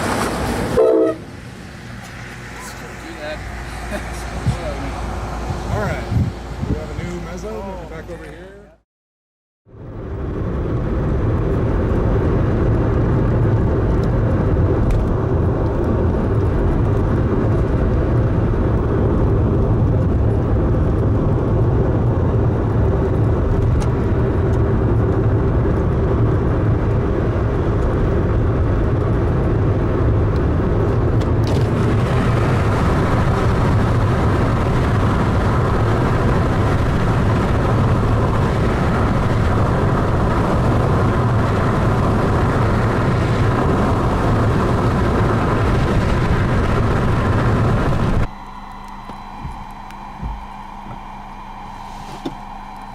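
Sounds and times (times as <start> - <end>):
road and engine noise inside car: 0.0 - 8.8, 9.7 - 52.9
hissy air rush: 51.7 - 52.4.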